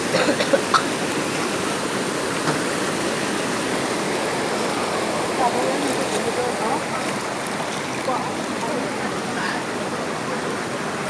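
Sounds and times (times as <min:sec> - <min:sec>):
floodwater rushing: 0:00.0 - 0:11.0
short water splashes: 0:00.1 - 0:11.0.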